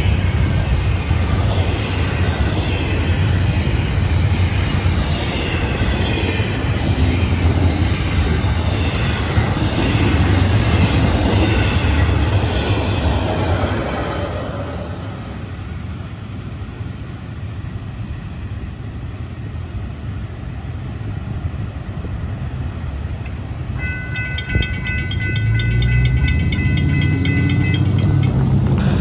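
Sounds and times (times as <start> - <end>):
freight train rumbling on rails: 0.0 - 29.0
low vehicle engine noise: 20.5 - 29.0
high-pitched ringing with ticks: 23.2 - 28.6.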